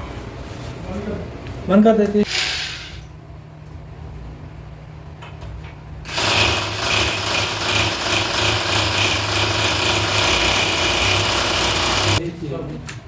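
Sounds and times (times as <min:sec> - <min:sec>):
power tool running: 0:02.2 - 0:03.1, 0:06.1 - 0:12.2.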